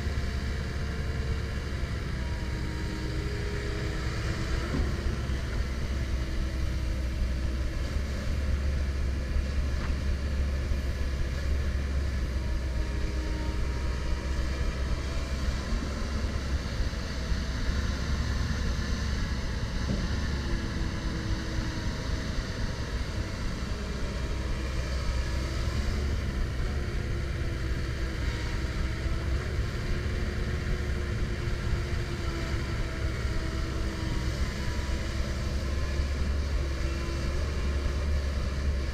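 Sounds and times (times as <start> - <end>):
excavator diesel engine rumbling: 0.0 - 38.9.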